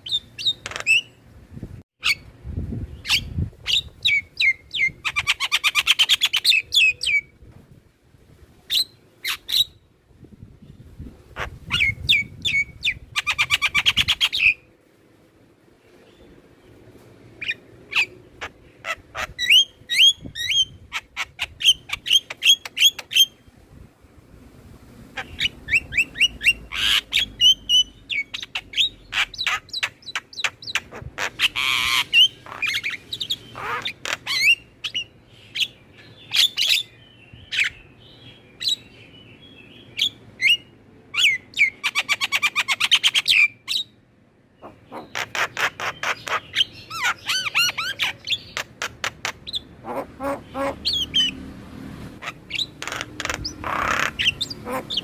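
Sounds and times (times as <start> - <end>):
starlings singing and chattering: 44.6 - 51.4, 52.2 - 55.0.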